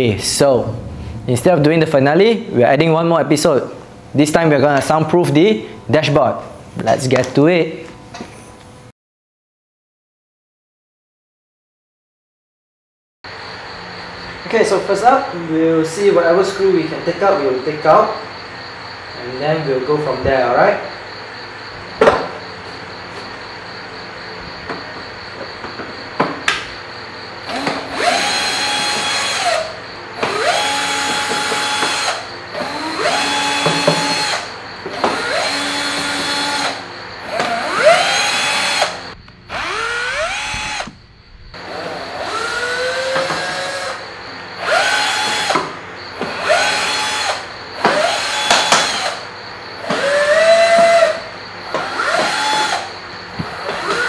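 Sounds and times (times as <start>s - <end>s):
power drill whining: 27.5s - 41.0s, 41.6s - 44.0s, 44.6s - 45.6s, 46.2s - 54.0s.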